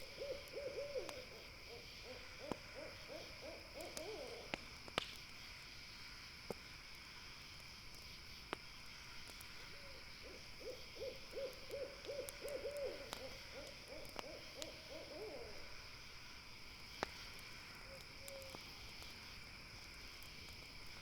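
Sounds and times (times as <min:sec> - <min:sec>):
owl hooting: 0:00.0 - 0:04.6, 0:09.8 - 0:15.8
campfire crackling: 0:00.0 - 0:21.0.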